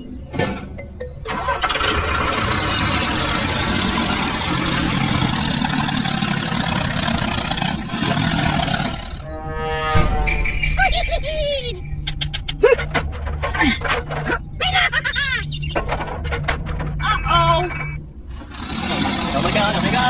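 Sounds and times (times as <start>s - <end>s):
engine starting and running: 1.2s - 9.3s, 12.8s - 20.0s.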